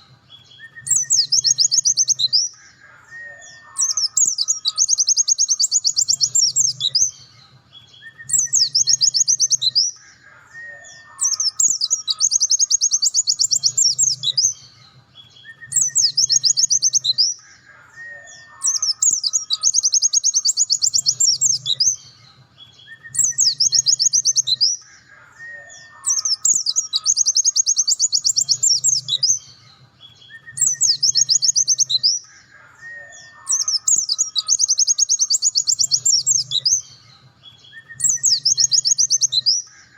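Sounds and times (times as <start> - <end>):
bird high trilling song: 0.0 - 39.9.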